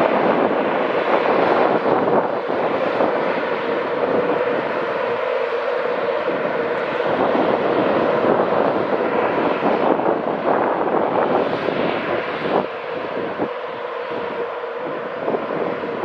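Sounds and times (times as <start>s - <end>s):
train mechanical hum: 0.0s - 11.3s
train rushing noise: 0.0s - 16.0s.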